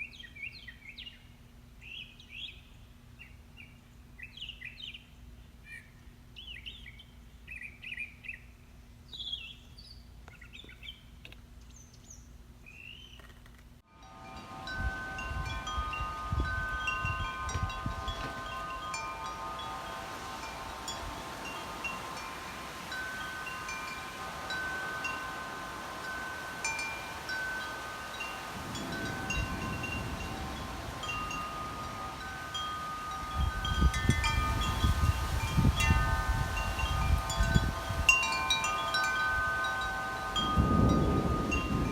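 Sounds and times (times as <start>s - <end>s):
wind chimes ringing: 13.9s - 41.9s
wind gusting on microphone: 13.9s - 41.9s
birds chirping: 15.2s - 33.8s.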